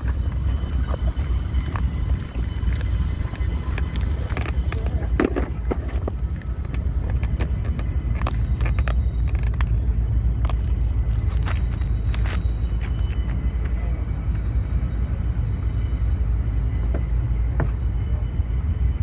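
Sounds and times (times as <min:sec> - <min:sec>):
sharp clicks and clanks: 0:00.0 - 0:13.4
train rumbling past: 0:00.0 - 0:19.0.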